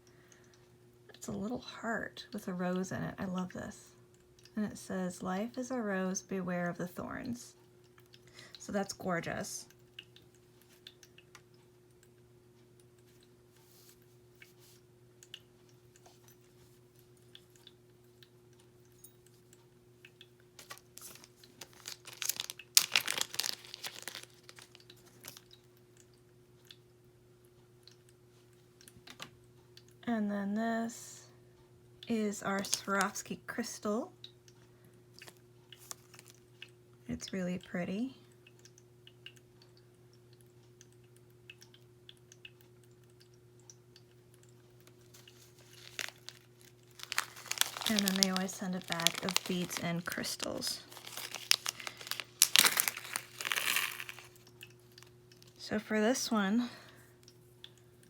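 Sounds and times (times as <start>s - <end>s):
faint steady hum: 0.0s - 58.0s
plastic packaging crinkling: 20.6s - 25.5s, 32.5s - 33.2s, 35.2s - 36.4s, 45.0s - 55.1s.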